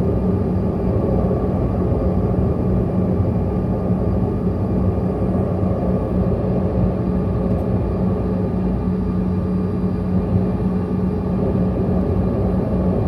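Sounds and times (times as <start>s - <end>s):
jet engines rumbling in cabin: 0.0s - 13.0s.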